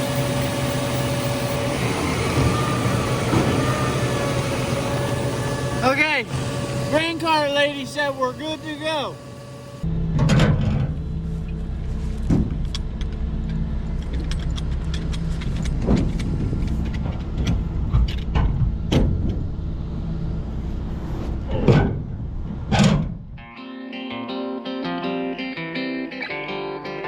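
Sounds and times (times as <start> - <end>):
truck diesel engine running: 0.0 - 10.1
electric guitar music: 23.4 - 27.0.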